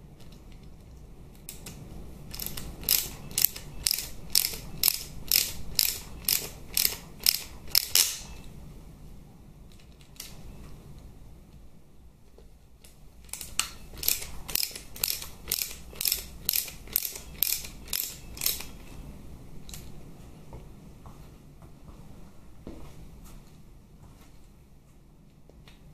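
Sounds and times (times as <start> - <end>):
hand ratchet clicking: 1.5 - 8.2, 13.3 - 18.7.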